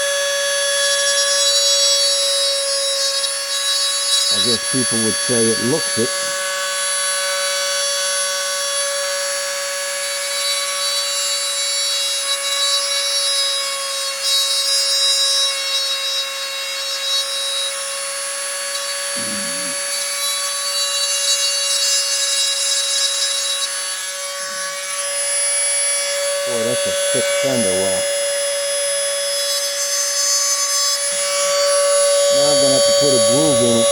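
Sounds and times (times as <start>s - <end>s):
rotary tool grinding: 0.0s - 33.9s.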